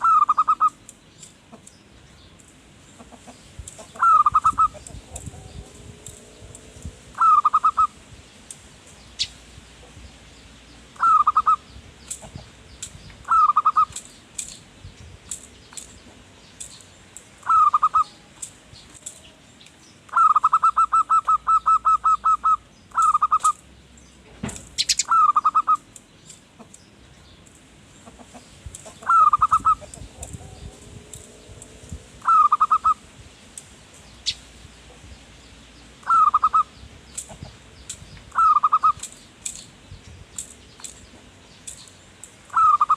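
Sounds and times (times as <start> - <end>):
dove cooing: 0.0 - 0.8, 3.0 - 8.0, 11.0 - 12.4, 13.2 - 14.0, 17.4 - 18.3, 20.1 - 23.6, 24.8 - 25.9, 28.1 - 33.0, 36.0 - 37.5, 38.3 - 39.1, 42.5 - 42.9.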